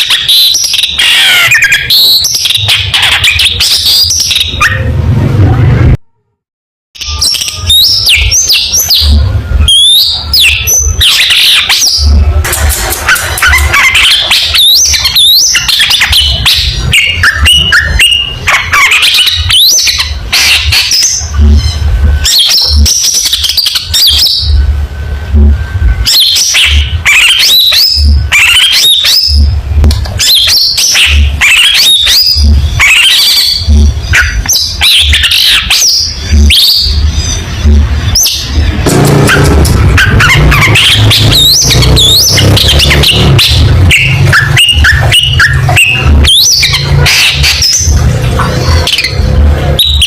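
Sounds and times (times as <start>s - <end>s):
low hum: 36.2s - 49.8s.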